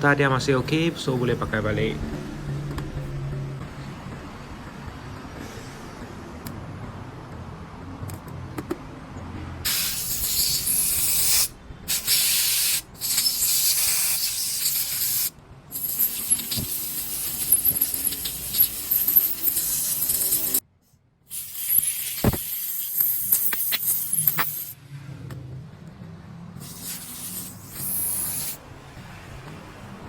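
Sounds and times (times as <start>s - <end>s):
hissing spray jet: 9.7s - 20.6s, 21.3s - 24.8s, 26.6s - 28.6s.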